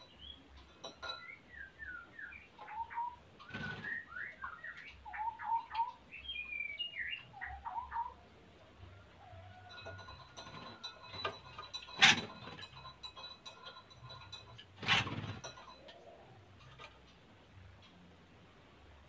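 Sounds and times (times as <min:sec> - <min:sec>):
light scattered ticking: 0:09.5 - 0:18.2.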